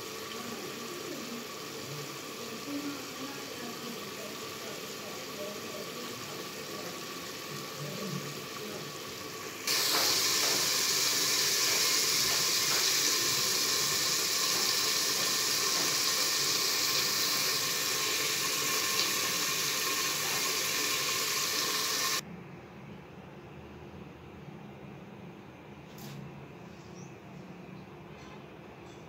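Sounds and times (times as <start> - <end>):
chicken sizzling in oil: 0.0 - 22.2.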